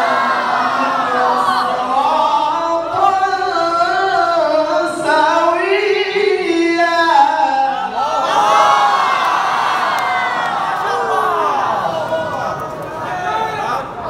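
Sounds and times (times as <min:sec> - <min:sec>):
man chanting a recitation: 0:00.0 - 0:08.1.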